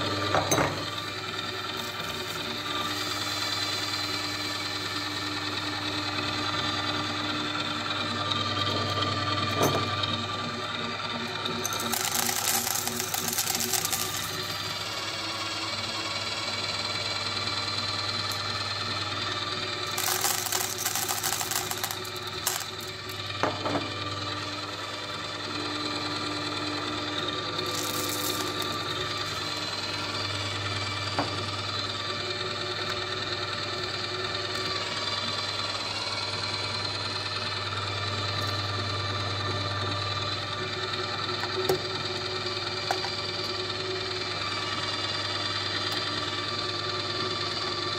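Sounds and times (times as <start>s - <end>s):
electric grinder motor humming: 0.0s - 47.9s.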